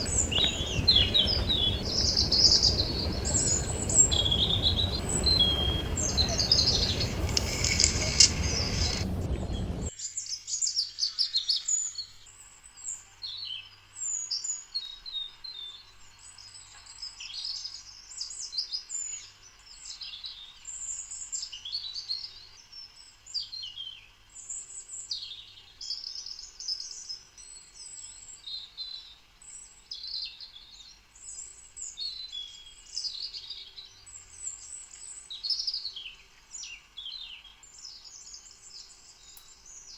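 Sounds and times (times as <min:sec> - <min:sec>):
loud rushing noise: 0:00.0 - 0:09.9
songbirds chirping: 0:00.0 - 0:09.9.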